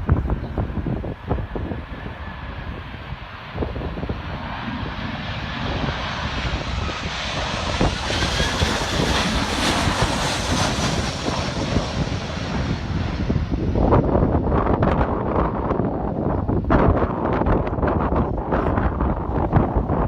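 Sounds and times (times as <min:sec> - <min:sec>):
airplane engines passing overhead: 0:00.0 - 0:20.0
wind rumbling on microphone: 0:00.0 - 0:20.0.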